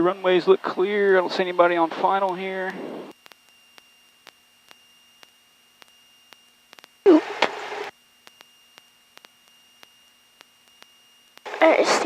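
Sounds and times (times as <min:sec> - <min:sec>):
thin steady whine: 0:00.0 - 0:12.0
faint electrical hiss: 0:00.2 - 0:12.0
soft clicks: 0:03.1 - 0:07.6, 0:08.2 - 0:11.5.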